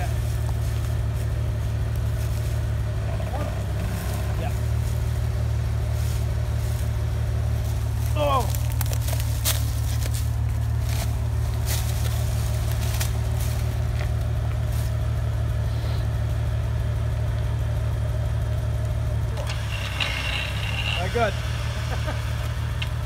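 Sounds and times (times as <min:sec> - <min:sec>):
car engine idling: 0:00.0 - 0:23.0
sharp clicks and crackles: 0:08.5 - 0:13.4.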